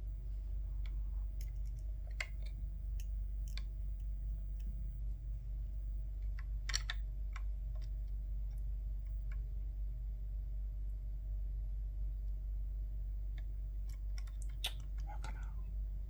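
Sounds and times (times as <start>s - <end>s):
steady low hum: 0.0s - 16.0s
plastic parts clicking: 6.3s - 8.6s.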